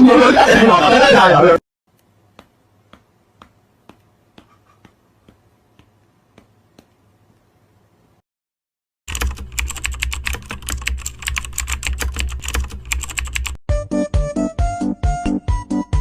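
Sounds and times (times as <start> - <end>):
computer keyboard typing: 9.1 - 13.6.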